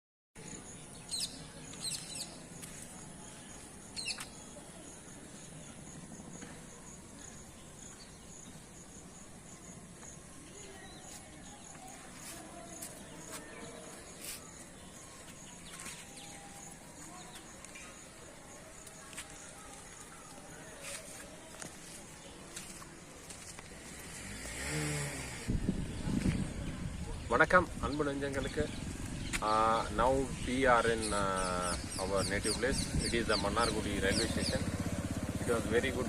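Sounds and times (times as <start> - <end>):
pulsing high insect call: 0.4 - 20.3
sharp bird chirps: 0.4 - 21.0.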